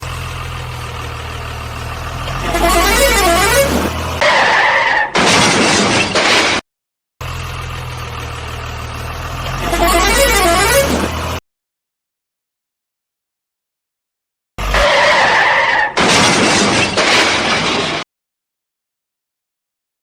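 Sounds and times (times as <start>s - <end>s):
horn note: 2.4s - 4.0s
warbling siren-like tune: 2.4s - 4.0s, 9.6s - 11.1s.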